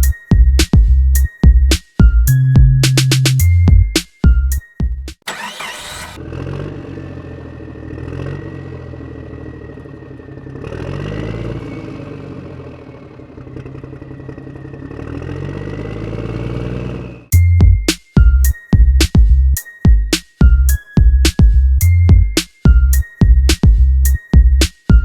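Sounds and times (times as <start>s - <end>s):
small tractor motor whining: 5.3s - 17.3s.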